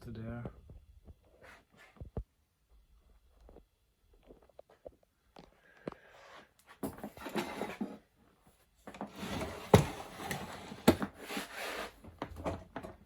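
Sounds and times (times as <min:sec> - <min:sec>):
handling rubbing and scraping: 0:06.1 - 0:13.0.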